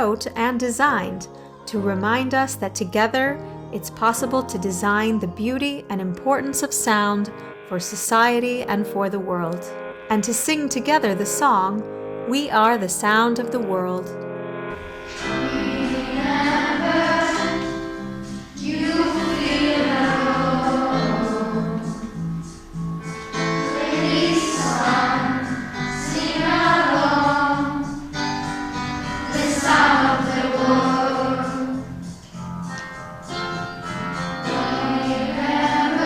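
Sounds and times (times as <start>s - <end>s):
instrumental accompaniment: 1.1s - 36.0s
children's choir singing: 14.7s - 32.2s, 34.1s - 36.0s.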